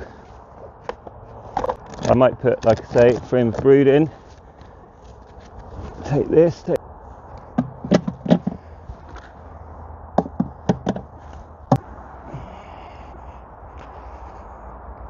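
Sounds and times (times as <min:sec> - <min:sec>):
wooden hive parts knocking: 0:07.4 - 0:08.6, 0:10.2 - 0:11.8.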